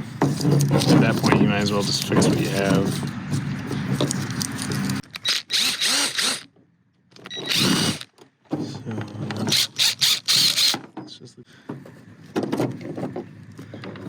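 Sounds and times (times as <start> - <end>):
drill clicks: 4.0 - 8.2, 9.5 - 10.8
power drill motor whine: 4.6 - 6.5, 7.2 - 8.2, 9.5 - 10.8.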